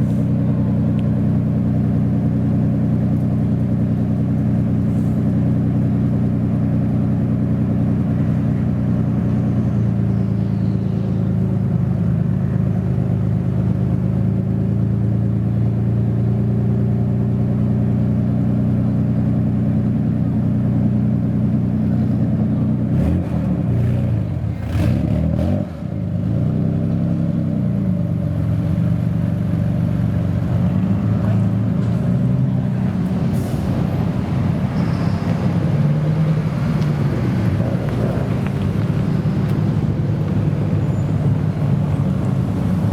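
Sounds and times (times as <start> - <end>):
car engine idling and revving: 0.0 - 42.9.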